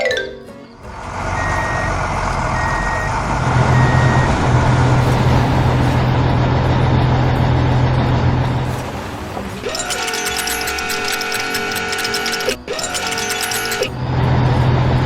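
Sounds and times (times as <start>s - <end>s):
construction vehicle engine running: 0.1s - 15.0s
reversing alarm beeping: 1.4s - 4.6s, 9.6s - 14.6s.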